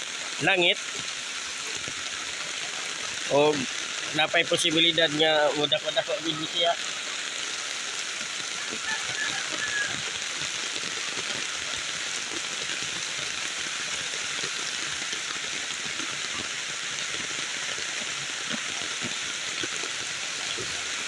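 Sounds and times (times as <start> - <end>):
rain hissing on water: 0.0 - 21.0
rushing river water: 0.0 - 21.0.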